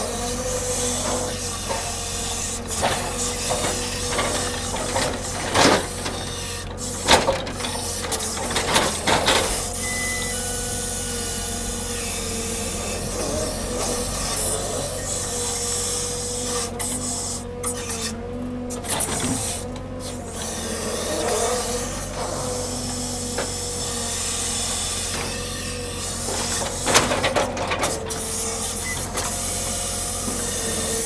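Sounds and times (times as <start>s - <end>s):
log-unloading machinery whining: 0.0s - 31.0s
loud knocks and scrapes: 0.2s - 9.8s.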